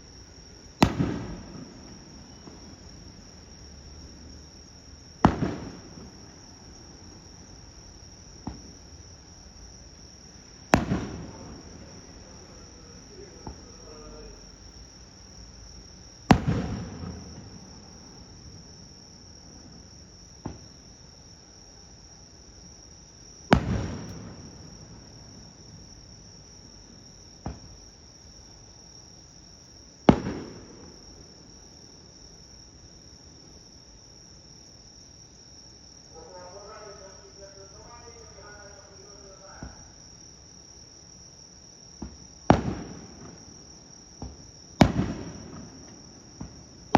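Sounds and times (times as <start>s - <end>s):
insect chirring: 0.0s - 46.9s
firework launch pop: 0.8s - 2.7s, 5.2s - 6.1s, 8.4s - 8.7s, 10.7s - 11.4s, 16.3s - 17.4s, 20.4s - 20.7s, 23.5s - 24.4s, 27.4s - 27.7s, 30.1s - 30.9s, 42.0s - 43.4s, 44.2s - 46.6s
firework shells bursting: 0.8s - 3.3s, 5.2s - 7.0s, 10.7s - 13.8s, 16.3s - 17.8s, 23.5s - 25.4s, 42.0s - 43.6s, 44.2s - 46.9s.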